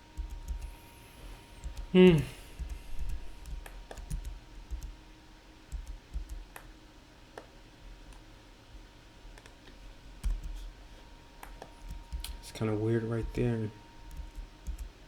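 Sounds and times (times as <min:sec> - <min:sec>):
faint electrical hum: 0:00.0 - 0:15.0
mouse clicks: 0:05.7 - 0:06.7.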